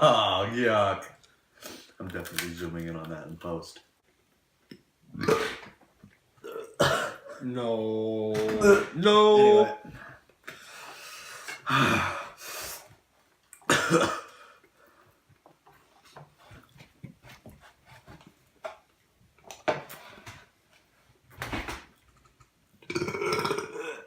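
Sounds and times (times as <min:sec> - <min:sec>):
person coughing: 0:06.4 - 0:07.4, 0:13.7 - 0:14.4.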